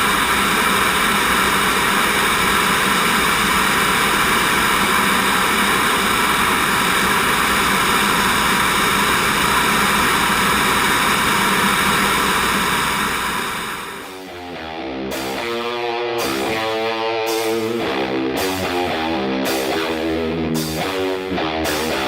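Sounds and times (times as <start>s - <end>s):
jet engine and airflow rush: 0.0s - 18.1s
constant whining tones: 0.0s - 22.0s
guitar music: 14.0s - 22.0s.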